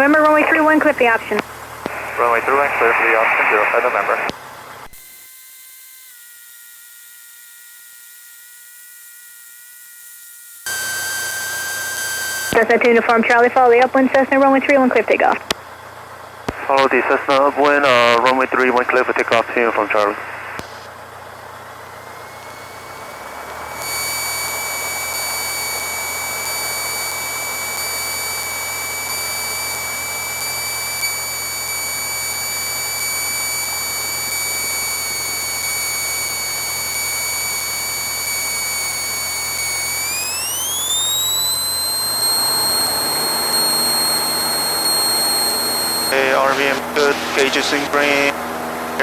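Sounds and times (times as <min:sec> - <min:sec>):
high-pitched intercom whine: 0:00.0 - 0:04.3, 0:10.7 - 0:15.5, 0:16.5 - 0:20.6, 0:22.4 - 0:48.4
light aircraft engine hum: 0:00.0 - 0:04.8.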